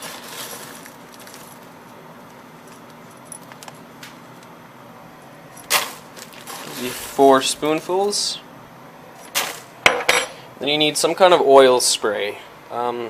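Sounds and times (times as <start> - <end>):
popcorn kernels rattling into paper bag: 0.0 - 1.8, 5.7 - 7.2.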